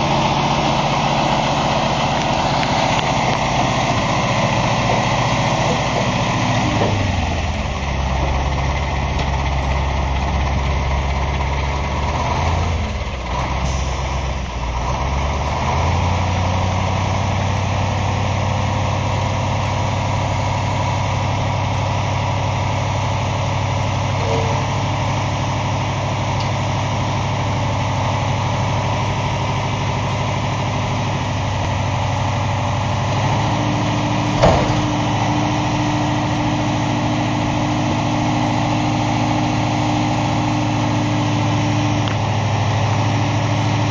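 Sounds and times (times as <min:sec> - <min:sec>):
diesel truck engine running: 0:00.0 - 0:43.9
steady hum: 0:00.0 - 0:43.9
sharp clunk: 0:33.2 - 0:37.5.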